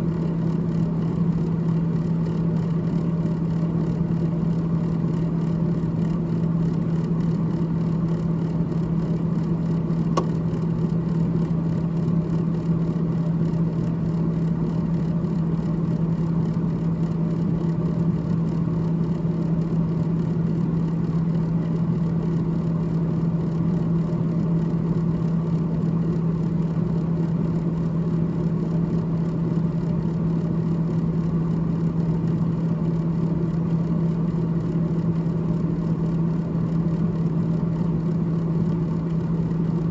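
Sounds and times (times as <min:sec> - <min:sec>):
faint tick: 0:10.1 - 0:10.4.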